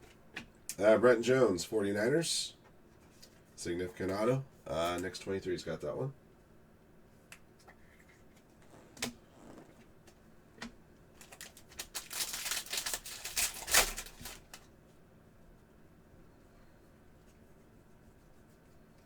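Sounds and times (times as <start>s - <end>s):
trading cards flipping and rustling: 11.2s - 14.6s.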